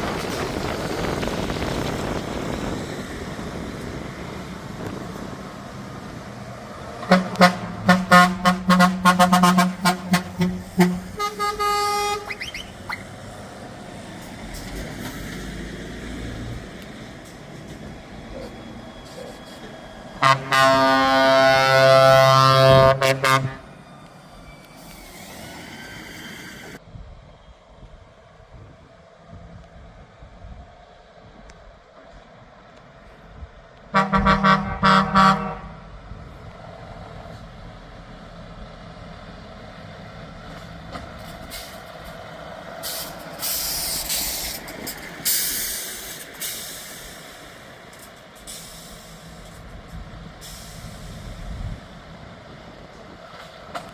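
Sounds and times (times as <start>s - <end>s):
vehicle engine and road noise: 0.0s - 53.9s
truck horn short toots: 7.0s - 13.0s, 20.2s - 23.6s, 33.9s - 35.8s.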